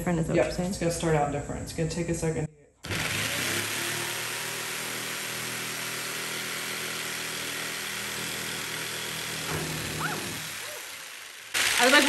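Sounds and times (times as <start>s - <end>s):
jigsaw cutting wood: 2.8s - 12.0s.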